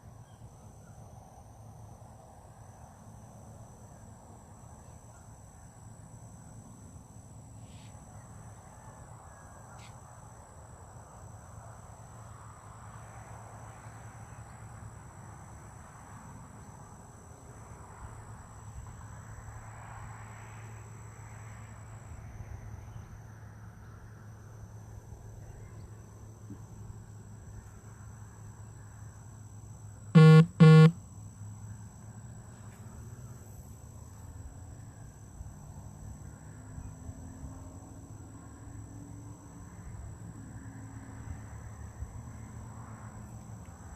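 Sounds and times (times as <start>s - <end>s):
loud short honks: 30.2s - 30.9s.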